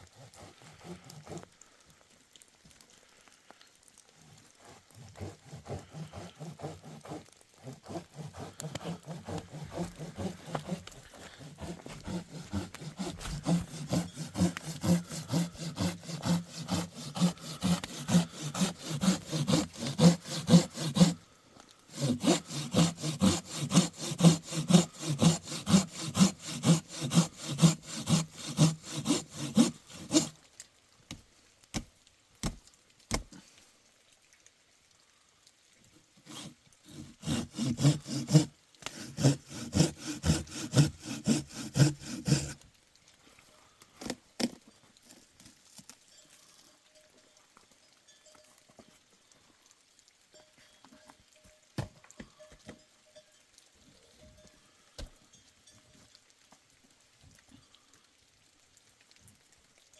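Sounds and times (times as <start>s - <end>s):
hand saw cutting wood: 0.0s - 1.5s, 4.2s - 21.2s, 21.9s - 30.4s, 36.2s - 42.6s.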